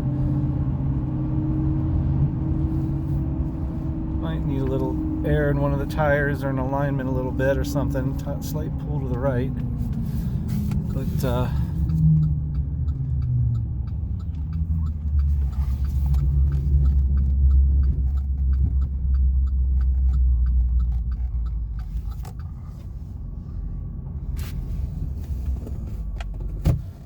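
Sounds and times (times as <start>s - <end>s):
engine and road rumble: 0.0s - 27.0s
light ticking: 5.6s - 22.8s.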